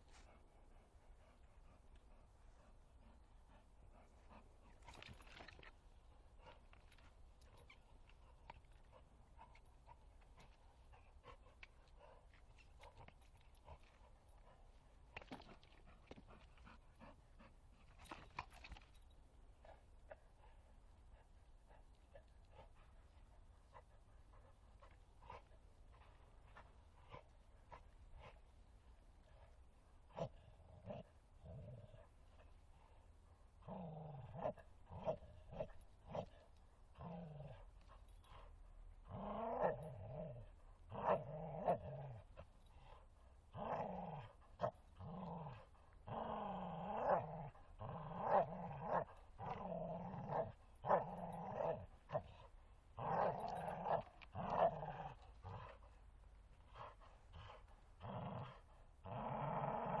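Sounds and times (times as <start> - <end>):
dog growling: 30.1 - 32.0, 39.1 - 42.3, 43.5 - 55.9, 56.7 - 60.0.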